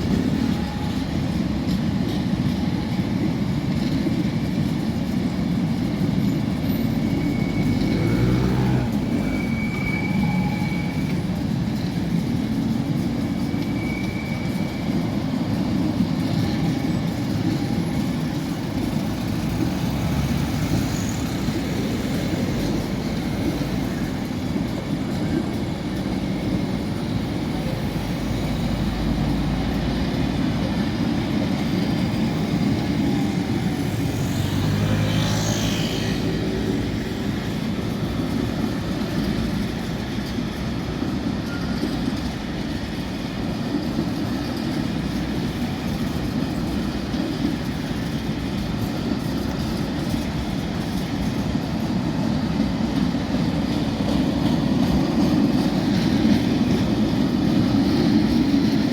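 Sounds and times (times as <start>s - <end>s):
train wheels rumbling on rail: 0.0s - 58.9s.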